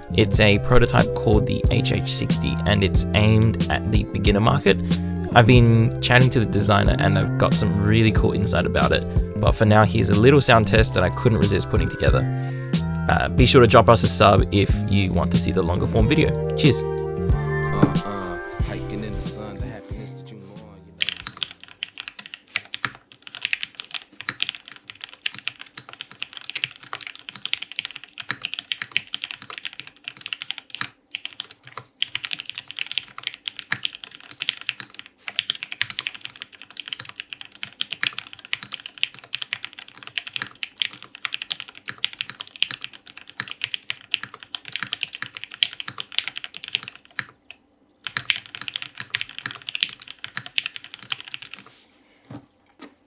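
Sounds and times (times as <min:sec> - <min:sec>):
mechanical keyboard typing: 0:21.0 - 0:51.7.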